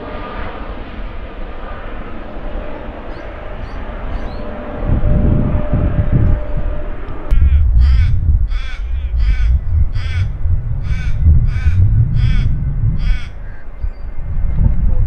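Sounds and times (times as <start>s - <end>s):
wind rumble on microphone: 0.0s - 15.0s
crow cawing: 7.3s - 13.8s.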